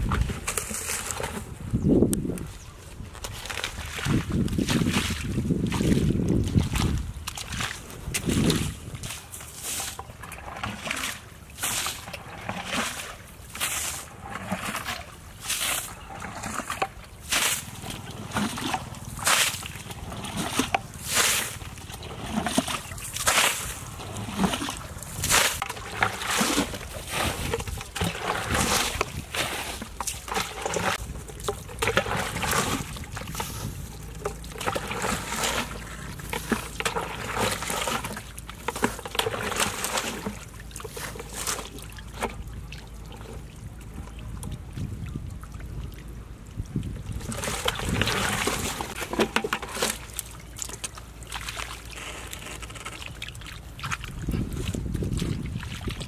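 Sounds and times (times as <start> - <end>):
wet mud squelching: 0.0 - 56.0.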